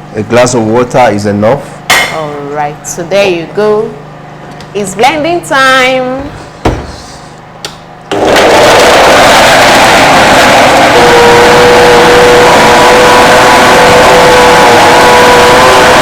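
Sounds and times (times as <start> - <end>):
electric blender running: 8.1 - 16.0.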